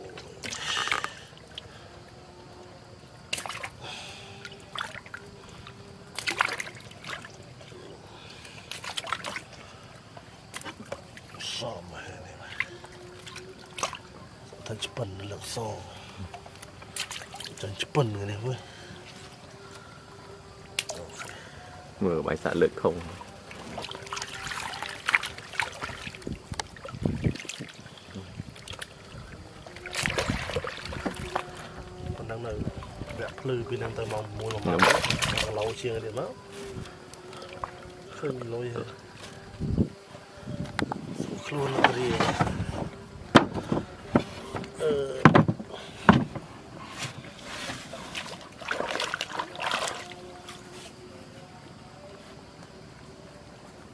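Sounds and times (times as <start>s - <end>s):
water splashing and dripping: 0.0s - 1.8s, 3.2s - 11.7s, 12.4s - 19.5s, 20.6s - 21.5s, 22.3s - 39.4s, 47.9s - 50.2s
faint steady hum: 0.0s - 53.9s
knocks and dull thuds: 41.8s - 46.5s.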